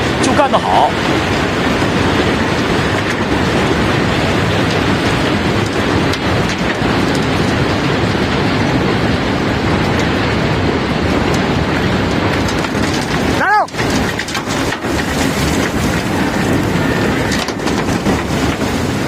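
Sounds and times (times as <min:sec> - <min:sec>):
cobblestones pouring and rattling: 0:00.0 - 0:19.0.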